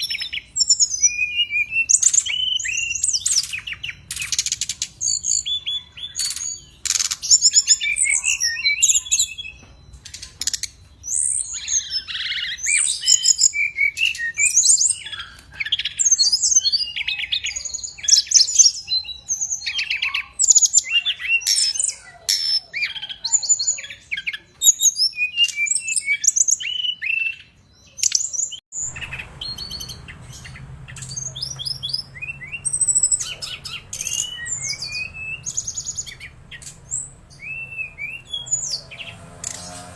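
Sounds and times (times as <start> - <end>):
songbird chirping and twittering: 0.0 - 39.9.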